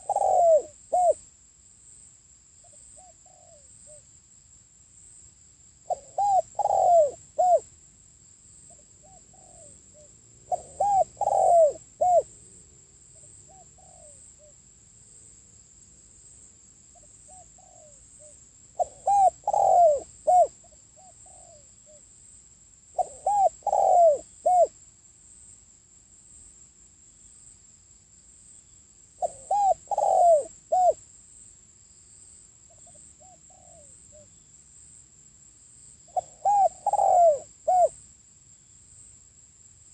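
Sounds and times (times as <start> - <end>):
dove cooing: 0.0 - 1.2, 3.0 - 4.0, 5.9 - 7.7, 8.7 - 12.5, 13.2 - 14.5, 17.3 - 22.0, 23.0 - 24.8, 29.2 - 31.0, 32.8 - 34.3, 36.1 - 38.0.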